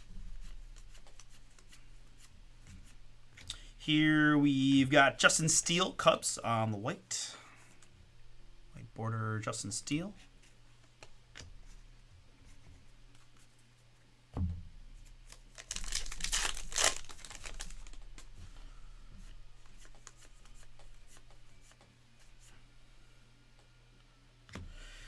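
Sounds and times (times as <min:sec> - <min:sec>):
cards being handled: 0:00.4 - 0:03.0, 0:15.2 - 0:18.4, 0:19.6 - 0:22.3
wrapper tearing and crinkling: 0:15.3 - 0:18.3.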